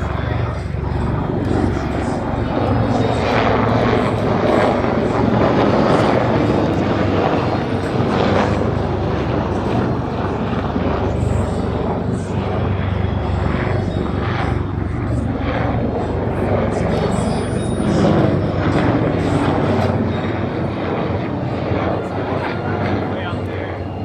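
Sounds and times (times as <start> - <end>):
aircraft engine noise: 0.0 - 24.0.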